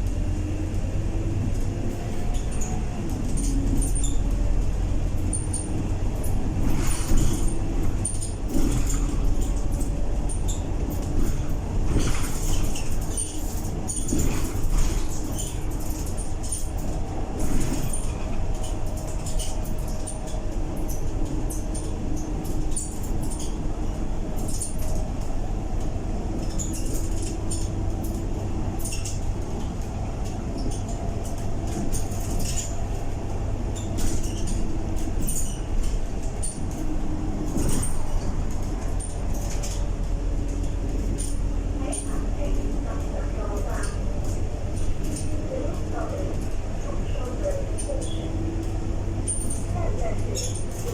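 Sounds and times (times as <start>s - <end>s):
body rattles and clicks: 0.0s - 50.9s
bus engine rumble: 0.0s - 50.9s.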